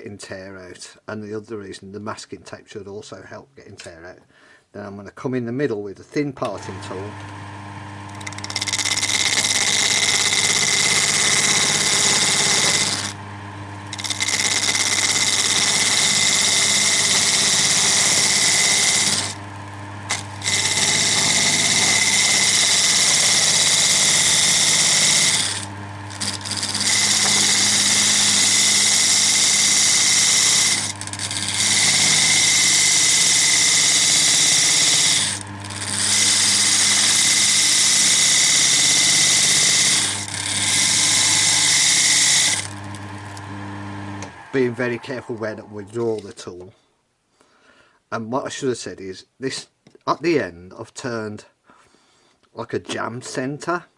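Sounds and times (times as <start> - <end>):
wood lathe humming: 6.4 - 46.4
parting tool cutting wood: 6.4 - 46.7.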